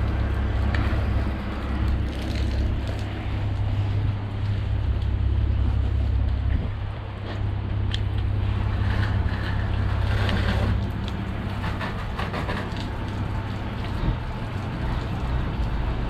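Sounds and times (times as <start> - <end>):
motor droning: 0.0 - 16.0.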